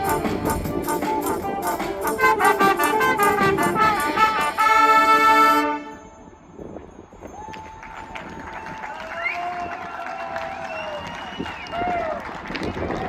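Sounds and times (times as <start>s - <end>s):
brass band playing: 0.0s - 6.2s.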